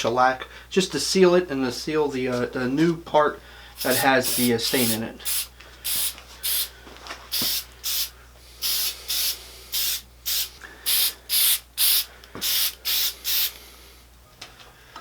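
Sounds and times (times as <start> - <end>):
aerosol can spraying in hissing bursts: 3.8 - 6.7, 7.3 - 13.6.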